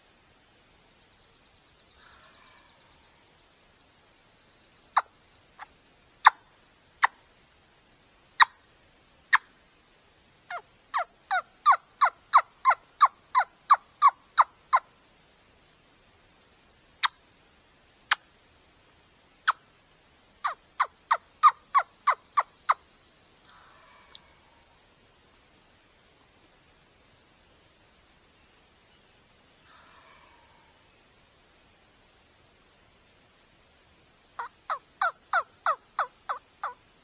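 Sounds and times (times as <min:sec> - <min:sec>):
faint rustle: 0:23.0 - 0:34.1.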